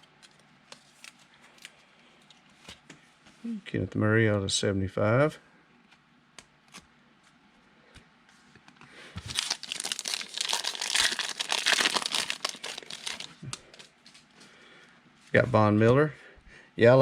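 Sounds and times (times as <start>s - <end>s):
foil wrapper tearing and crinkling: 9.2s - 13.9s.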